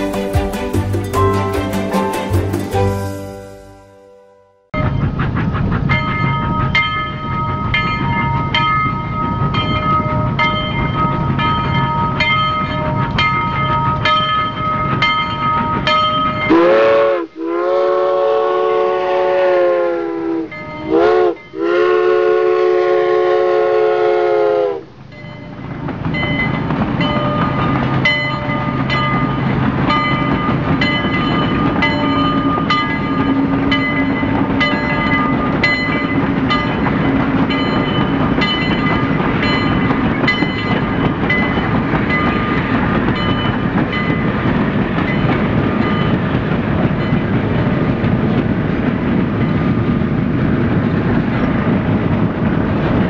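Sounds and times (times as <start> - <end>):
train running with high whine: 0.0 - 53.0
train horn: 16.4 - 24.9.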